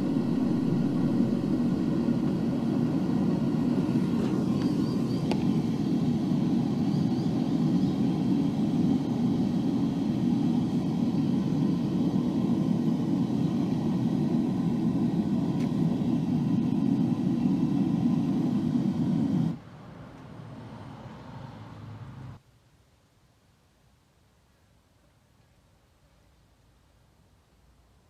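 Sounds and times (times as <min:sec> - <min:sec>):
gas burner rushing: 0:00.0 - 0:19.6.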